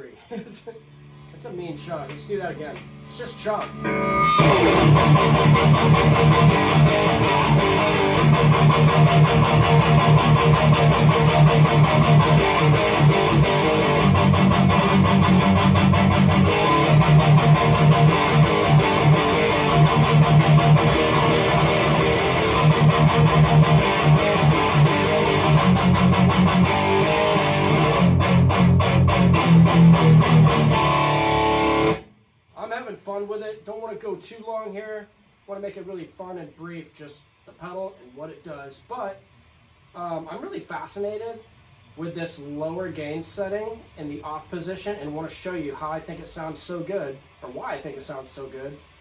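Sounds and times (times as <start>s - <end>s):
distorted electric guitar metal riffs: 0.6s - 32.1s.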